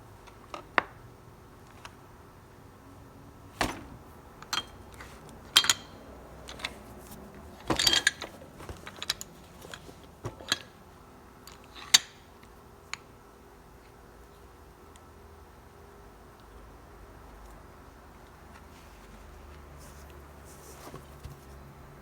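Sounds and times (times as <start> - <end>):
metal parts clinking: 4.4 - 10.8
metal clatter: 7.6 - 10.7.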